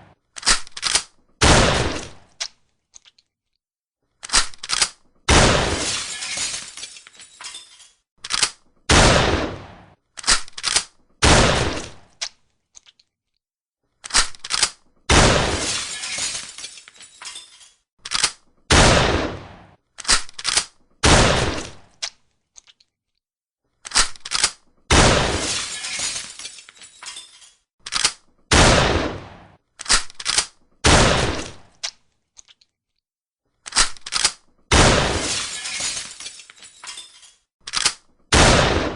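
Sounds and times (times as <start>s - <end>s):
shotgun action clicks: 0.4s - 1.2s, 4.2s - 5.1s, 8.2s - 8.7s, 10.2s - 11.0s, 27.9s - 28.3s, 29.8s - 30.6s, 33.6s - 34.5s, 37.6s - 38.1s
shotgun shots: 1.4s - 2.2s, 5.3s - 5.9s, 8.9s - 10.0s, 11.2s - 12.0s, 15.1s - 15.7s, 18.7s - 19.8s, 21.0s - 21.8s, 24.9s - 25.6s, 28.5s - 29.6s, 30.8s - 31.7s, 34.7s - 35.4s, 38.3s - 38.9s.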